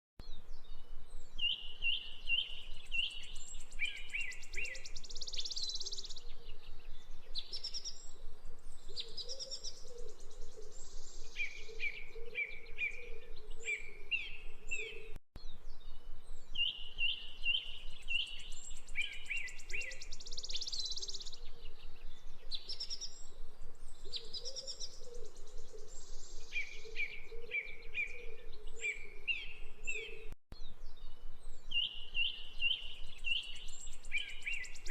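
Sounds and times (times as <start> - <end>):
high bird chirps and trills: 8.8 - 23.3.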